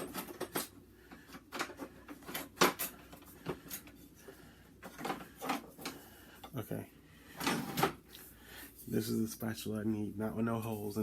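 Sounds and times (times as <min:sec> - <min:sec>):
kitchen utensils clattering: 0:00.0 - 0:00.8, 0:01.4 - 0:04.2, 0:07.4 - 0:08.0.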